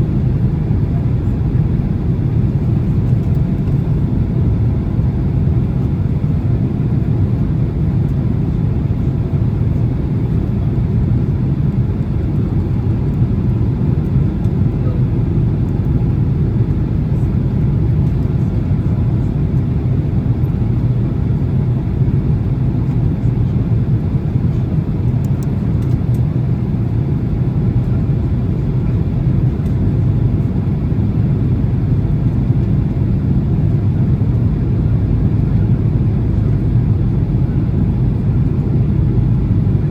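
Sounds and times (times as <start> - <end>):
plane cabin engine rumble: 0.0 - 39.9.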